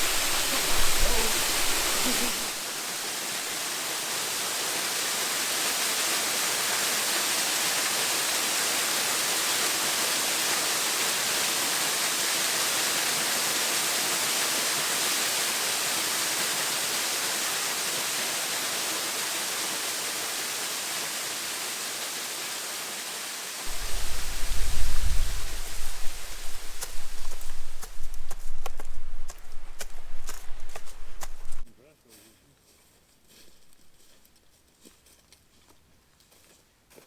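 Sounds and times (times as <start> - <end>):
microphone noise rumble: 0.0 - 2.6, 23.7 - 31.6
waterfall rushing: 0.0 - 3.8, 23.7 - 31.6.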